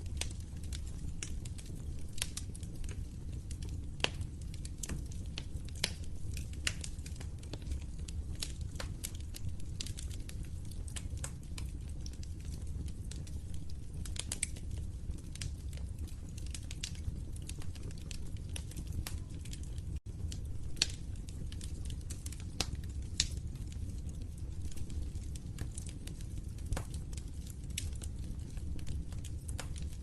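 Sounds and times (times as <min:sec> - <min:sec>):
low rumble of flames: 0:00.0 - 0:30.0
wood fire crackling: 0:00.0 - 0:30.0.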